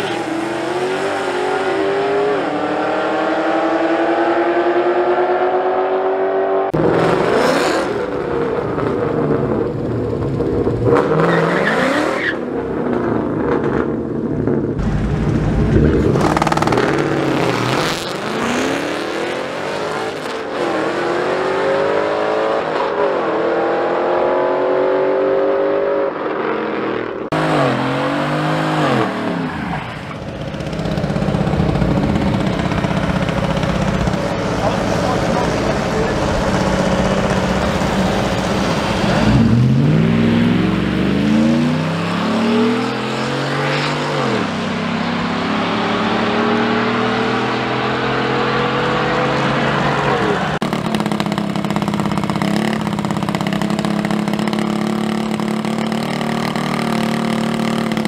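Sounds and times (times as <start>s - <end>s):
car engines accelerating hard: 0.0s - 58.0s.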